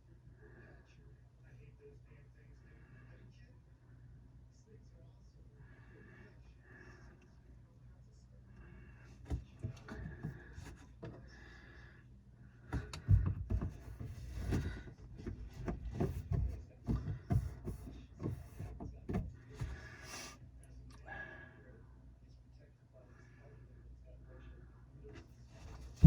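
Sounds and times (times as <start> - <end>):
low steady hum: 0.0 - 26.0
knocks clicks and rubbing: 12.7 - 19.8.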